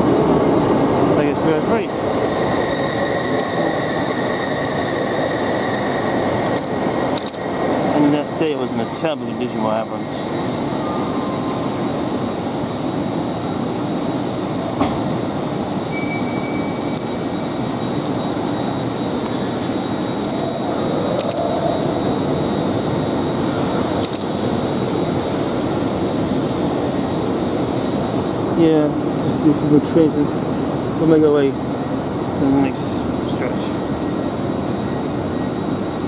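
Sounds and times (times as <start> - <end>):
faint high whine: 0.0 - 36.0
train rumble and hiss: 0.0 - 36.0.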